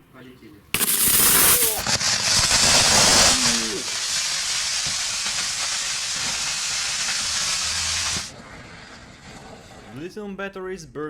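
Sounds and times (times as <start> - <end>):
battery venting hiss: 0.8 - 9.4.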